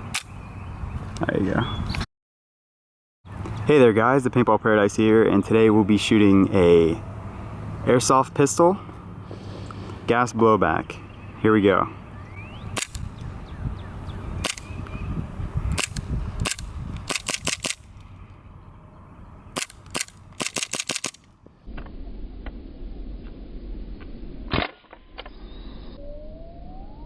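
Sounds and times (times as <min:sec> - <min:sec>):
airsoft pistol shots: 0:14.4 - 0:14.7, 0:15.8 - 0:17.8, 0:19.6 - 0:21.2.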